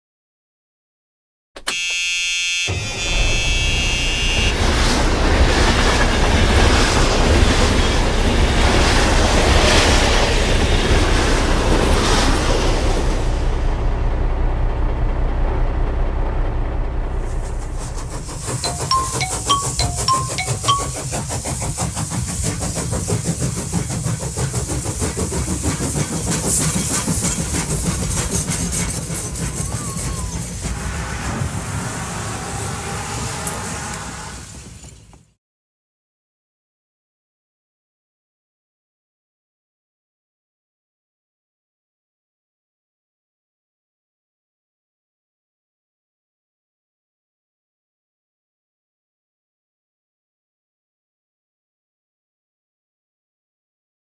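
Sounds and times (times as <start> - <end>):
train whistle: 1.7 - 7.0, 29.5 - 34.6
moving train rumbling clatter: 3.4 - 35.3
toy train rattling on track: 18.3 - 30.7
hiss: 21.5 - 35.1.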